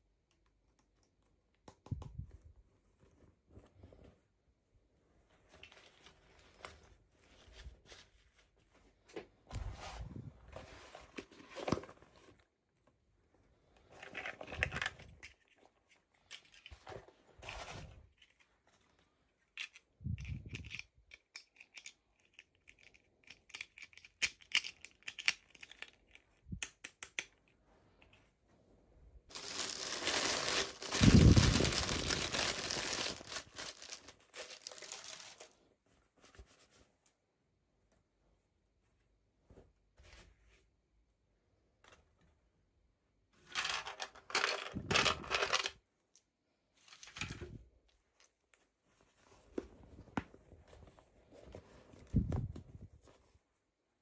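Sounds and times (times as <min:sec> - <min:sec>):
packaging tearing and crinkling: 0:29.3 - 0:35.5.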